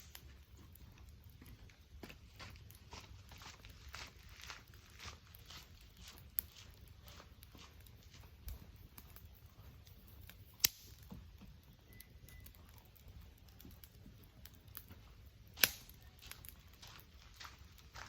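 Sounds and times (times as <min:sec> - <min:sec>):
sharp fire pops: 0:00.0 - 0:00.4, 0:10.2 - 0:11.3, 0:13.4 - 0:16.6
wood fire crackling: 0:00.0 - 0:18.0.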